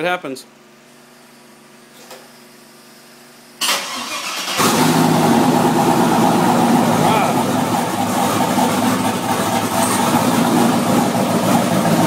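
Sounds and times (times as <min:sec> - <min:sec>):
car starter cranking: 0:03.6 - 0:05.1
car engine idling loudly: 0:04.6 - 0:12.0.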